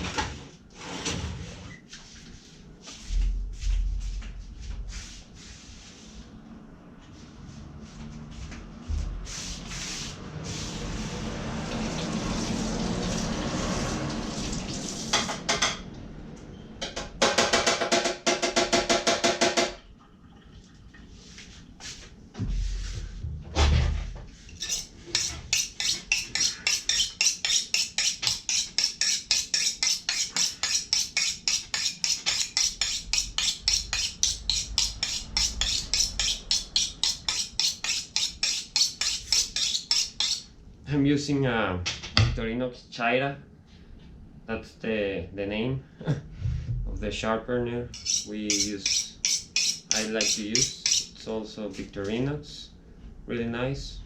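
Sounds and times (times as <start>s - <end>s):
knife honing on steel: 24.6s - 40.5s, 48.0s - 51.2s.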